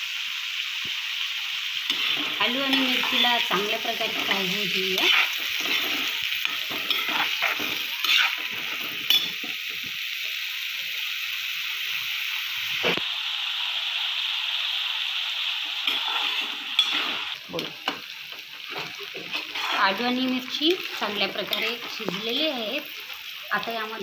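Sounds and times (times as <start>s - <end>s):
food sizzling in hot oil: 0.0s - 24.0s
spatula scraping and knocking pan: 1.9s - 9.9s, 15.9s - 18.0s, 18.6s - 20.0s.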